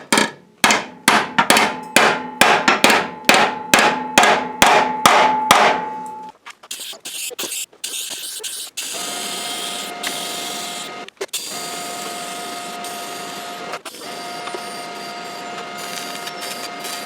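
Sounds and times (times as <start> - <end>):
hammer striking metal: 0.0 - 6.3.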